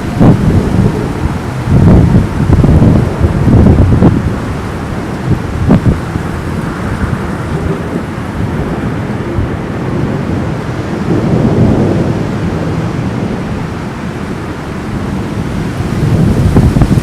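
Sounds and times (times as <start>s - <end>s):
steady rain: 0.0s - 17.0s
thunder rumbling: 0.0s - 17.0s.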